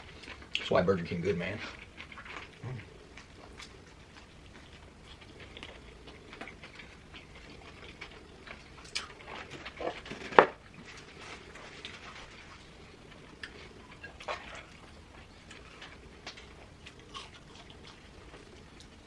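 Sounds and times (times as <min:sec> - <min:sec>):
chewing and crunching: 0:00.0 - 0:19.0.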